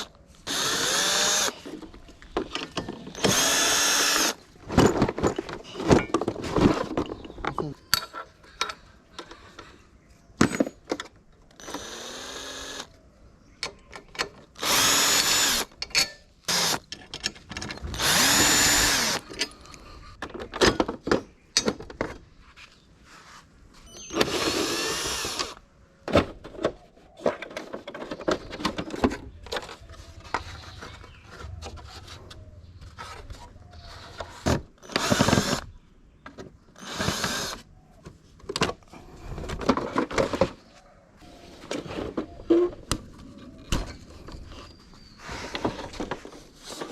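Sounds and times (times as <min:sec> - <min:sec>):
power drill bursts: 0:00.4 - 0:01.5, 0:03.2 - 0:04.4, 0:11.6 - 0:12.9, 0:14.6 - 0:15.7, 0:16.5 - 0:16.8, 0:17.9 - 0:19.2, 0:24.1 - 0:25.6, 0:34.8 - 0:35.7, 0:36.8 - 0:37.6.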